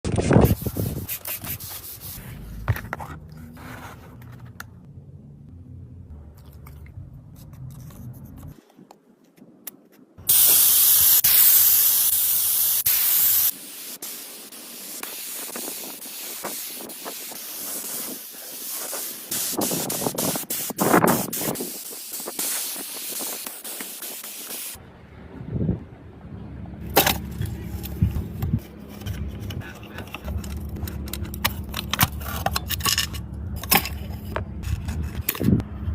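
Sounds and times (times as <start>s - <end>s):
rubbing noises: 0.0s - 4.6s
spray hiss: 10.3s - 24.8s.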